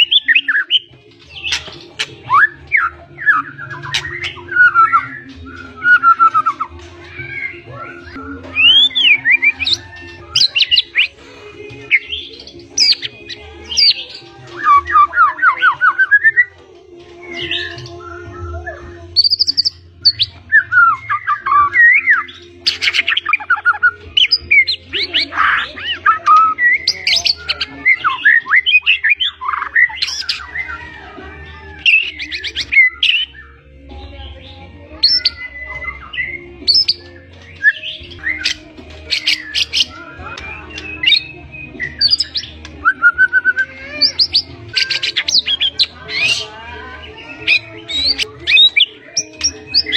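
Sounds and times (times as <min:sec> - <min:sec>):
bird singing whistles and trills: 0:00.0 - 0:11.2, 0:11.8 - 0:16.5, 0:17.1 - 0:31.0, 0:31.8 - 0:49.9.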